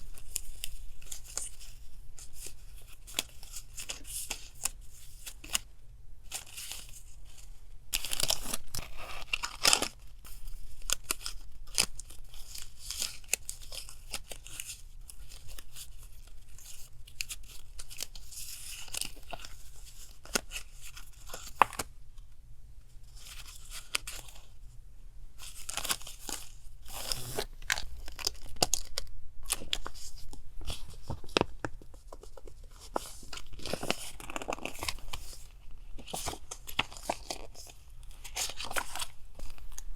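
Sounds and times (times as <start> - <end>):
paper crinkling and rustling: 0.0 - 5.7, 6.3 - 21.9, 23.0 - 24.7, 25.4 - 39.9
paper tearing: 25.6 - 28.8.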